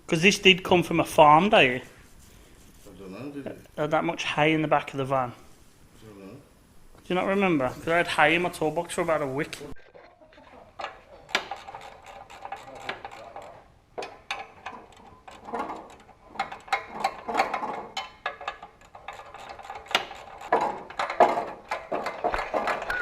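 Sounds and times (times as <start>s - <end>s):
ratchet clicking: 10.8s - 22.8s.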